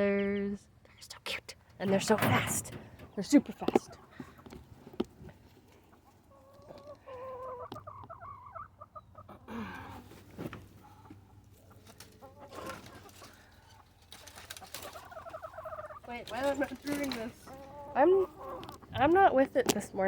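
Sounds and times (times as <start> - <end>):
chickens clucking softly: 2.8 - 10.2, 10.8 - 16.5, 17.4 - 19.2
scattered clicks and rustles: 14.0 - 15.0, 16.2 - 17.4.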